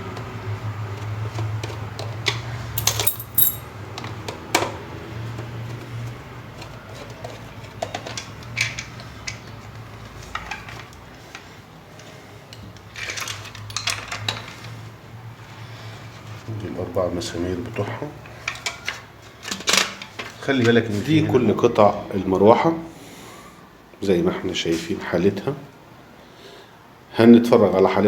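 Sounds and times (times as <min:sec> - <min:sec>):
metal and plastic parts clinking: 0:02.8 - 0:03.7, 0:13.0 - 0:14.6.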